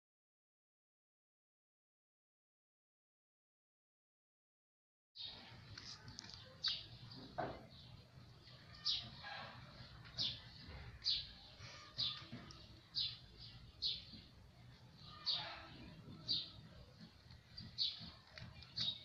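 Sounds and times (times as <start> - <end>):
bird chirping: 5.2 - 19.0
low background noise: 5.2 - 19.0.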